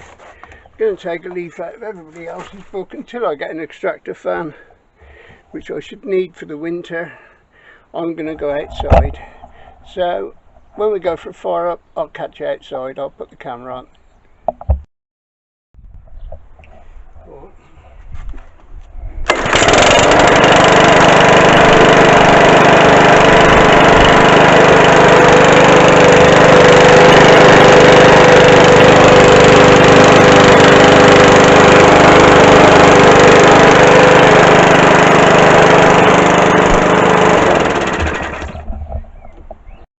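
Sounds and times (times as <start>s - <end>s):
lawnmower engine running: 19.2s - 38.9s.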